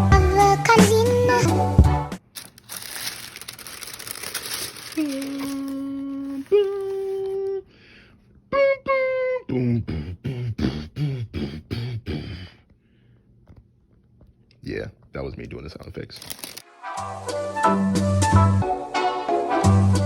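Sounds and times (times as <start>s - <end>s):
man making vocal sound effects: 9.5s - 12.6s.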